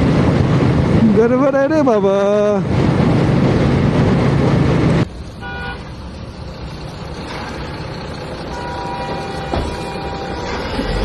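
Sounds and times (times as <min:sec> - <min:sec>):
road traffic: 0:00.0 - 0:11.0
wind and engine noise: 0:00.0 - 0:11.0
vehicle horn toot: 0:05.4 - 0:06.0, 0:08.5 - 0:11.0
faint horn-like tones: 0:08.4 - 0:11.0.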